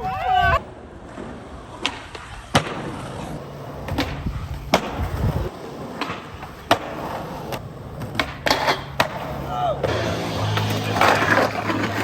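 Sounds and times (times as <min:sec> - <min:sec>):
skateboard wheels rolling: 0:00.0 - 0:12.0
skateboard clacking on ground: 0:01.0 - 0:12.0.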